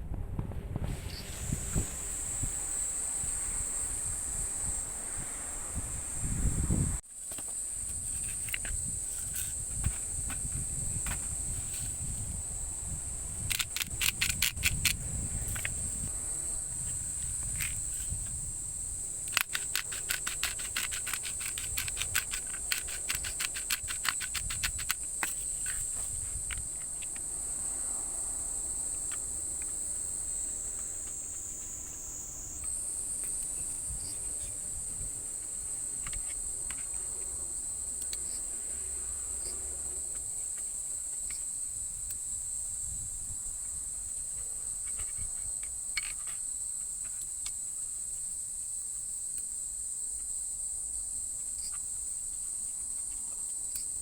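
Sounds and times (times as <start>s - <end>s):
insects trilling: 1.1s - 54.0s
rapid clicks: 13.5s - 15.0s, 19.2s - 25.8s.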